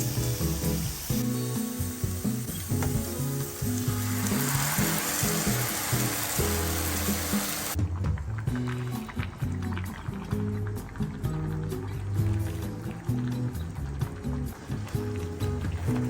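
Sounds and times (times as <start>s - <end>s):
food sizzling in a frying pan: 0.0s - 16.0s
slow background music: 0.0s - 16.0s.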